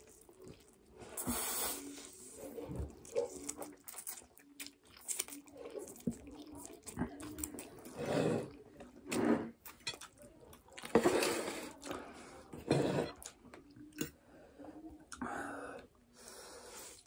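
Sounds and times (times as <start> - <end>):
chewing noodles: 0.0 - 12.0.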